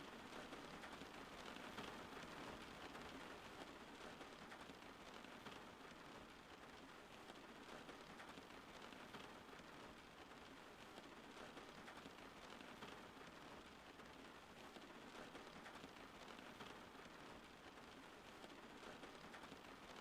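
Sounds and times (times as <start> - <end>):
faint steady rain: 0.0 - 20.0.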